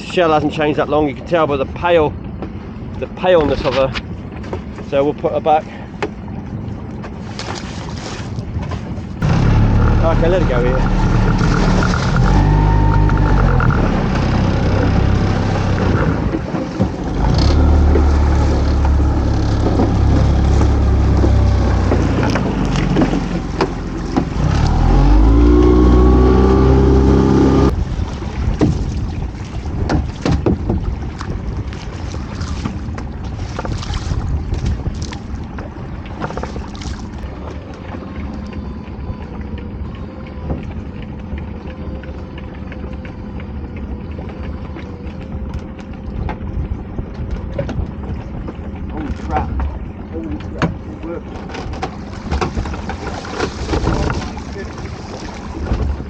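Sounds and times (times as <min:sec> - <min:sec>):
wind: 0:00.0 - 0:56.0
water splashing: 0:06.2 - 0:56.0
boat motor revving: 0:09.2 - 0:27.8.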